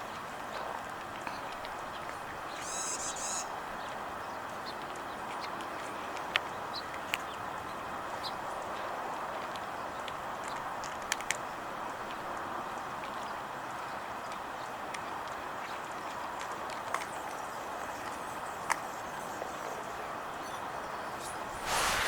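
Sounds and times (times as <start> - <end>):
outdoor background noise: 0.0 - 22.0
bird warbling call: 2.6 - 3.5.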